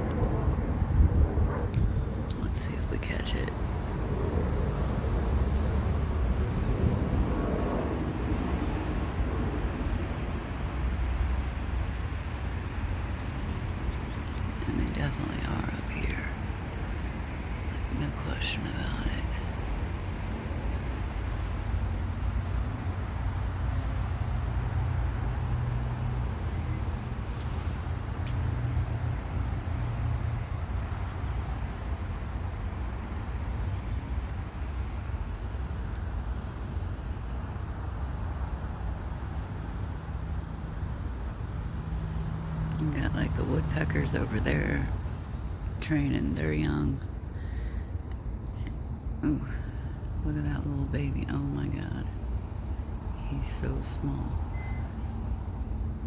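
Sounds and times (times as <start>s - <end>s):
low outdoor rumble: 0.0s - 56.0s
small birds chirping: 12.4s - 19.9s, 21.2s - 21.8s, 32.7s - 35.8s, 45.3s - 54.8s.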